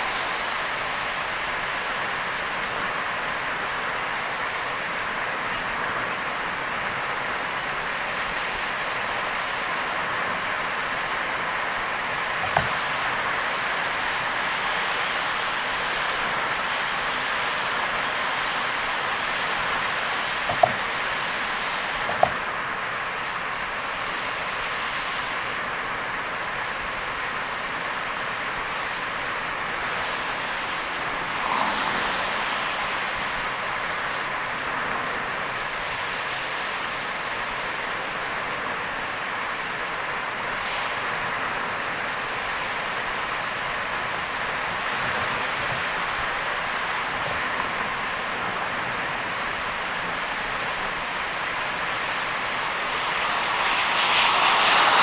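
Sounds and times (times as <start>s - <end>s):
car tyre spray on wet road: 0.0s - 5.4s, 6.2s - 55.0s
heavy rain hiss: 0.0s - 55.0s.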